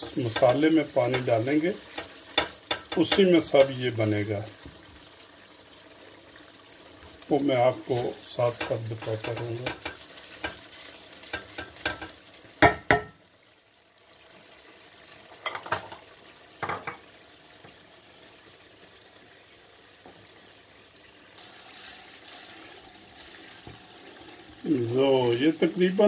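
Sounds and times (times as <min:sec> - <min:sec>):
wooden spatula knocking against pan: 0:00.0 - 0:03.8, 0:08.5 - 0:10.6, 0:11.3 - 0:13.2
masala sizzling in oil: 0:00.0 - 0:26.0.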